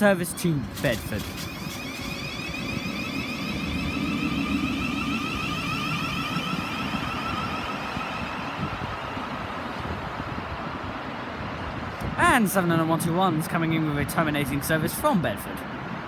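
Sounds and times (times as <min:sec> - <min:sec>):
electric train motor whine: 0:00.6 - 0:11.9
low rumble: 0:02.0 - 0:10.8.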